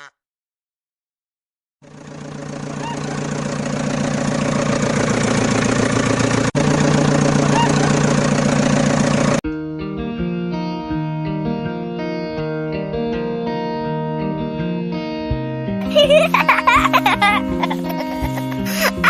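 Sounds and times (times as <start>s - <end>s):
small engine running: 1.8s - 9.4s, 15.8s - 19.0s.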